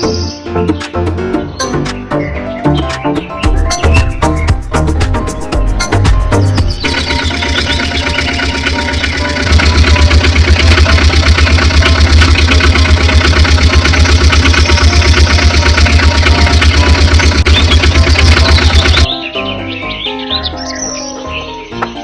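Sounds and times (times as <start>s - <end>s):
tractor engine idling: 6.6s - 19.1s.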